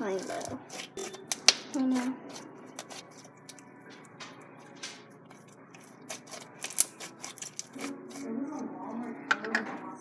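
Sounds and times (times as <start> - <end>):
foam-bead slime crackling: 5.8 - 8.2.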